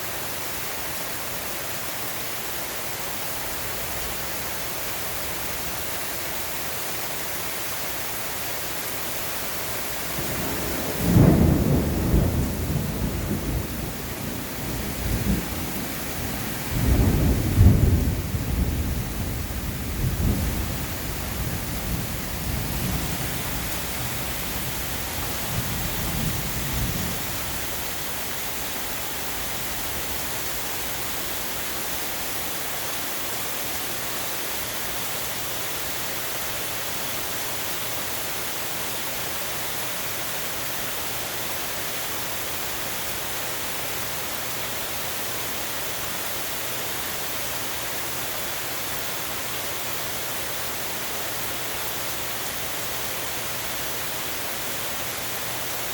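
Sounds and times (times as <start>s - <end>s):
rain hissing: 0.0s - 55.9s
thunder rumbling: 10.1s - 31.7s.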